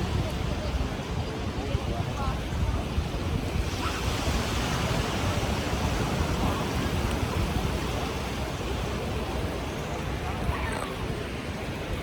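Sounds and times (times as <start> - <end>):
ocean surf on sandy beach: 0.0 - 12.0
wind rumble on microphone: 0.0 - 12.0.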